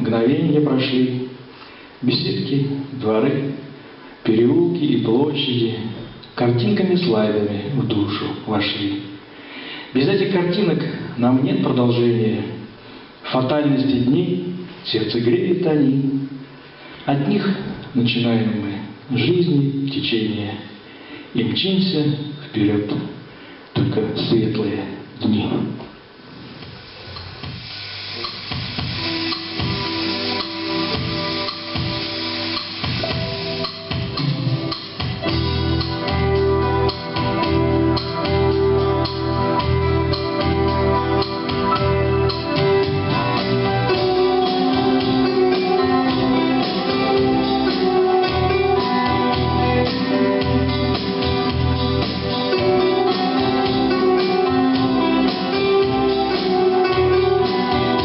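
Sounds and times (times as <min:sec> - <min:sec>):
instrumental music with drum beat: 0:26.5 - 0:58.0.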